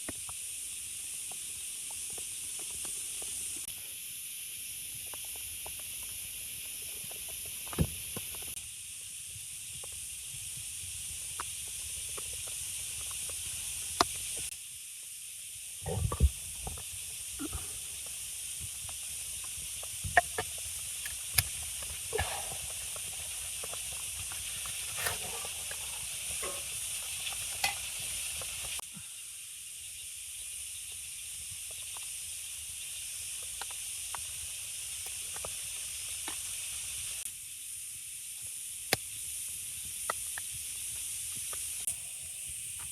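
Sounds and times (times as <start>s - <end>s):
steady hiss: 0.0s - 42.9s.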